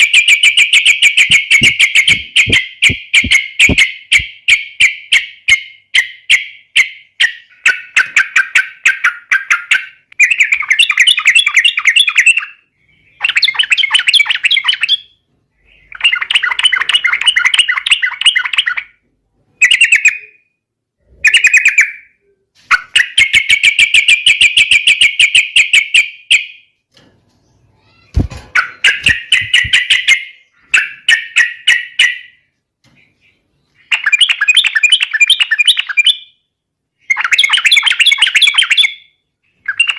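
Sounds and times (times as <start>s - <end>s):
bird singing chattering phrases: 0.0s - 4.2s.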